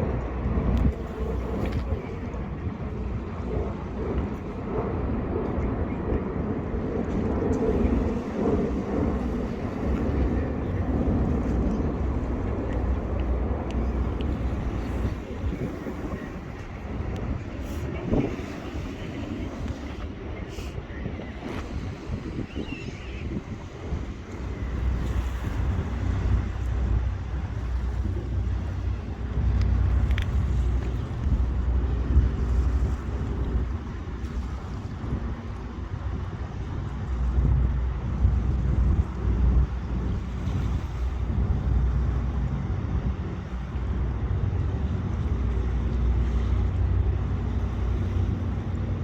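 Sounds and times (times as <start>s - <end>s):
boat engines rumbling: 0.0s - 49.0s
wind buffeting microphone: 0.0s - 49.0s.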